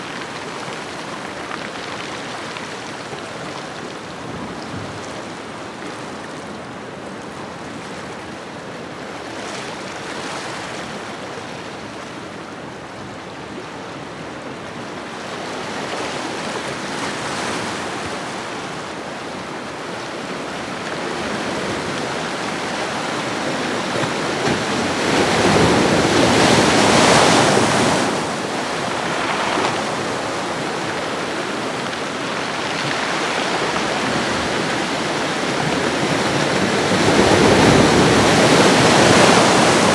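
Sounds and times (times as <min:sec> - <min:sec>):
ocean waves on shoreline: 0:20.6 - 0:39.9.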